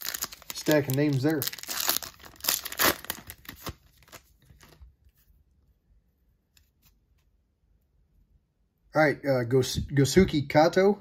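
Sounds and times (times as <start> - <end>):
wrapper crinkling: 0.0 - 4.8.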